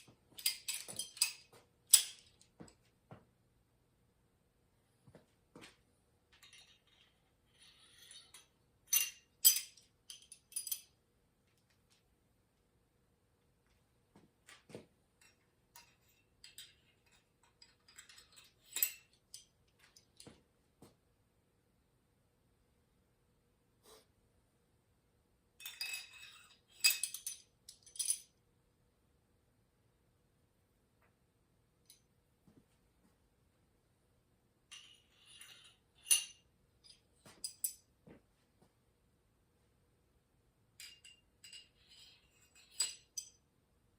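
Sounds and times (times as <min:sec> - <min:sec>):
small metal parts clinking: 0:00.2 - 0:02.5, 0:06.3 - 0:12.0, 0:15.2 - 0:20.3, 0:25.6 - 0:28.3, 0:34.7 - 0:37.8, 0:40.8 - 0:43.4.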